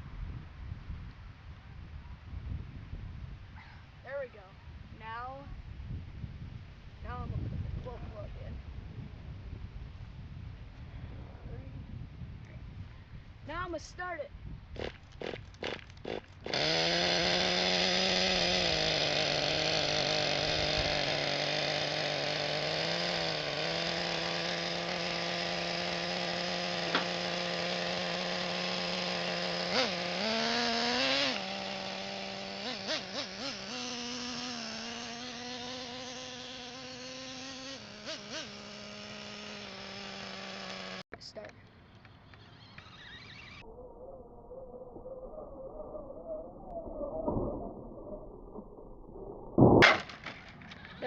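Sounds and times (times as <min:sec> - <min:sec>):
toy car engine buzzing: 0:14.8 - 0:41.0, 0:41.9 - 0:43.6.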